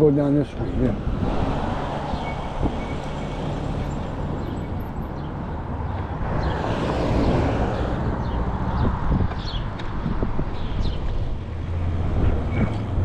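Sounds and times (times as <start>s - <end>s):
road traffic noise: 0.0s - 13.0s
vehicle passing: 0.4s - 13.0s.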